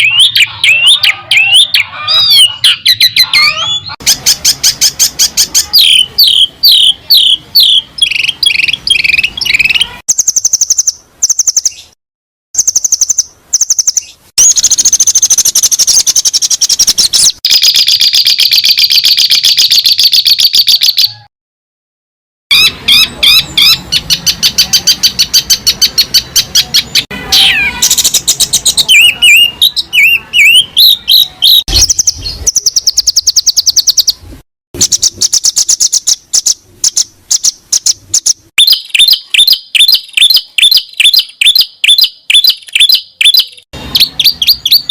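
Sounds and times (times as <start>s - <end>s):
songbird trills and chatter: 0.0s - 11.9s, 22.5s - 34.2s, 34.8s - 44.9s.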